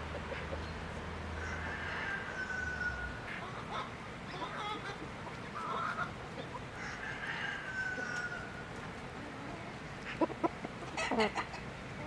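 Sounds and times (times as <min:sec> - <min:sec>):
rooster crowing: 0:01.4 - 0:03.1, 0:06.8 - 0:08.6.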